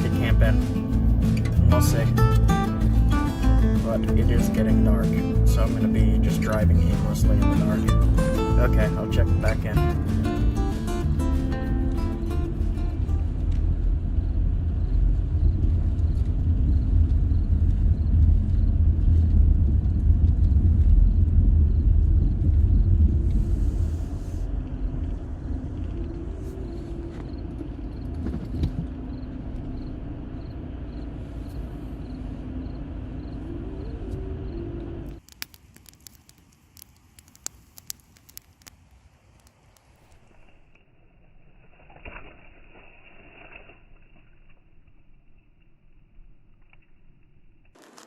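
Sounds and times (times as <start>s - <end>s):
car road noise rumble: 0.0s - 35.3s
faint clicks: 35.1s - 40.8s.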